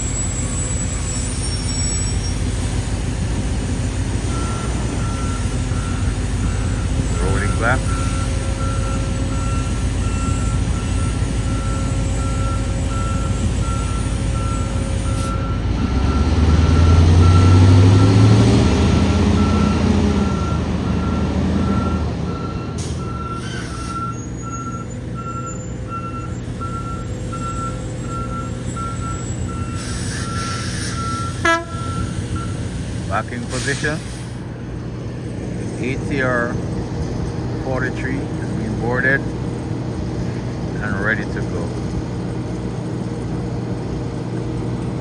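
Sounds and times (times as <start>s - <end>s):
reversing beeper: 0.0s - 2.7s, 4.2s - 34.0s
engine rumble: 0.0s - 45.0s.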